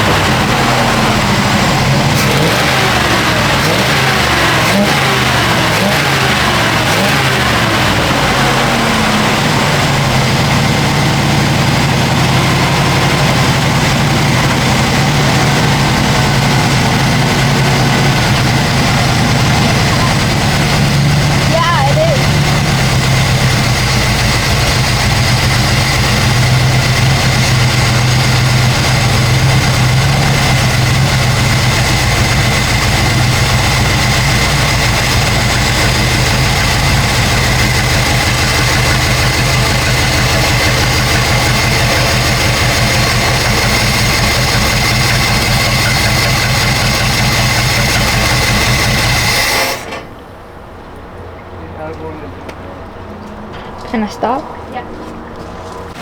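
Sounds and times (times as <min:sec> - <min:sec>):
pickup engine running and shutting off: 0:00.0 - 0:54.1, 0:55.0 - 0:56.0.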